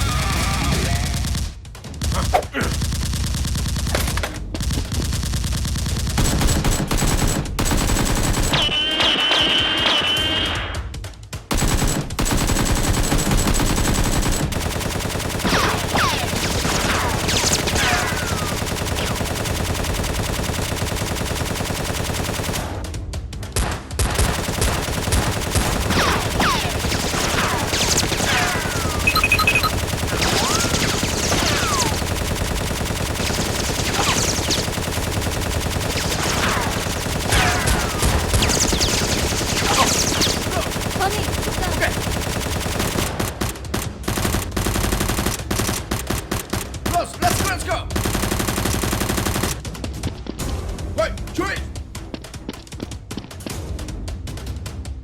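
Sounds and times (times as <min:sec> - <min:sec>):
machine gun bursts: 0:04.9 - 0:08.7, 0:11.5 - 0:22.7, 0:24.2 - 0:46.7.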